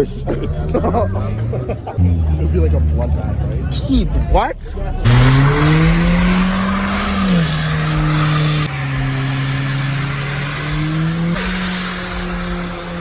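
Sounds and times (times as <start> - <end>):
car engine revving high: 5.0 - 13.0
spinning tyres hissing: 5.0 - 13.0.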